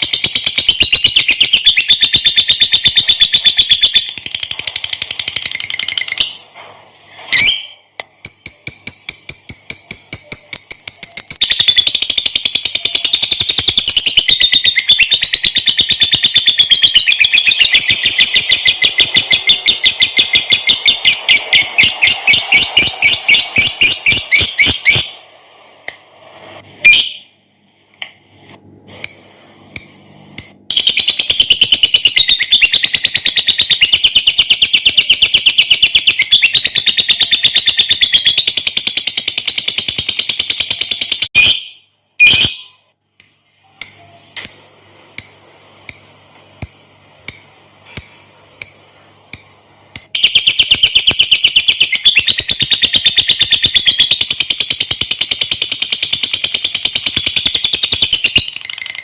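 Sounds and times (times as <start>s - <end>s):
lovebird chattering: 7.4s - 25.2s, 45.2s - 59.0s.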